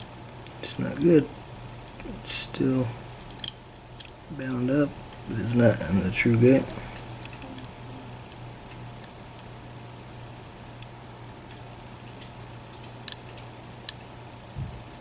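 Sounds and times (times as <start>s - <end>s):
lock picks clicking in a lock: 0.0s - 1.1s, 3.2s - 4.2s
faint low hum: 0.0s - 15.0s.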